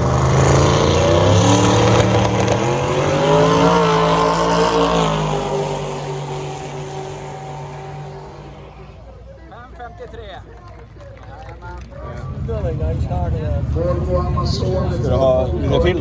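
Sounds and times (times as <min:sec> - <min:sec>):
race car engine accelerating: 0:00.0 - 0:09.3.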